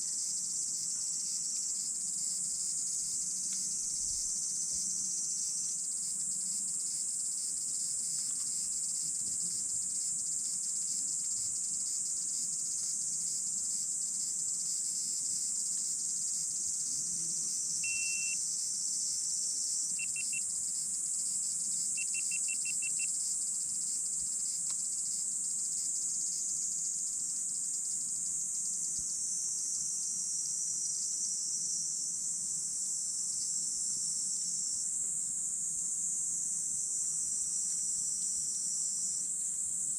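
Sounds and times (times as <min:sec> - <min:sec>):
short high chirps: 0:17.8 - 0:18.4.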